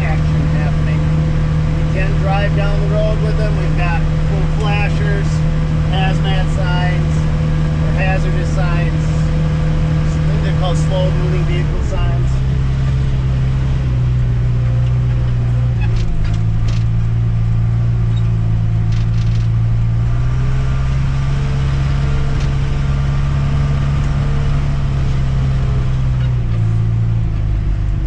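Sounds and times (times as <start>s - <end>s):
diesel engine running: 0.0s - 28.0s
rattles and knocks: 14.6s - 17.1s, 18.1s - 19.6s.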